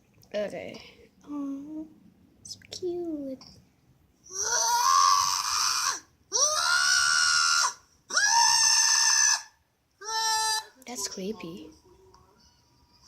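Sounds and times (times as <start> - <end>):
animal screaming: 4.3 - 10.8.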